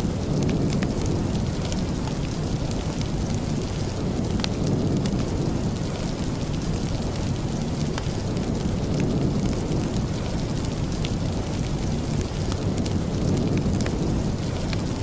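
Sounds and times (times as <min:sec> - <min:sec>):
steady rain: 0:00.0 - 0:15.0
wood fire crackling: 0:00.0 - 0:15.0.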